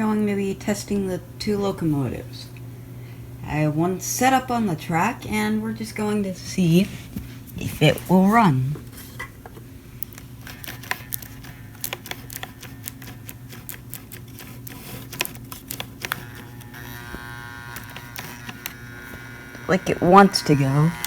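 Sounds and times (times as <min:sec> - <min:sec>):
electric motor buzzing and humming: 0:10.3 - 0:21.0.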